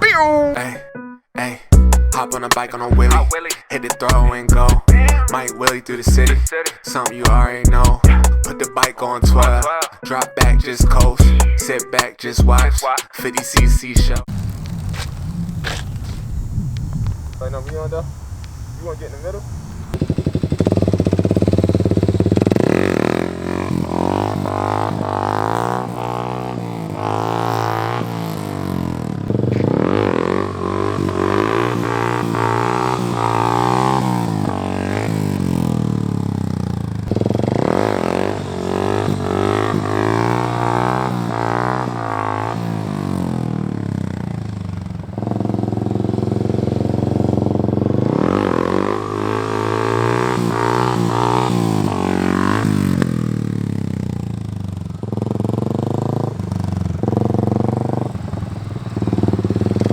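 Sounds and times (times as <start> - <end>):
dirt bike engine revving: 13.6 - 16.5, 17.4 - 59.9.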